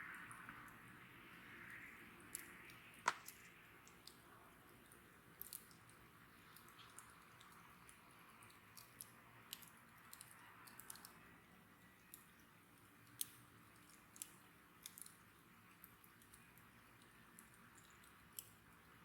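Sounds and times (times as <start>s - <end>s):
soft hiss: 0.0s - 19.0s
bonfire crackling and popping: 1.7s - 4.2s.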